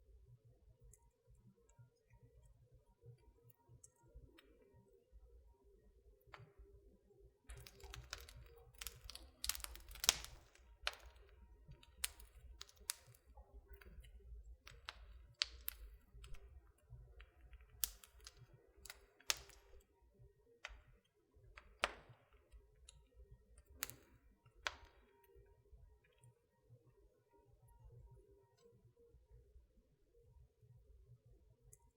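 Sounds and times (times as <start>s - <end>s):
wood fire crackling: 7.5s - 20.0s, 20.6s - 25.4s.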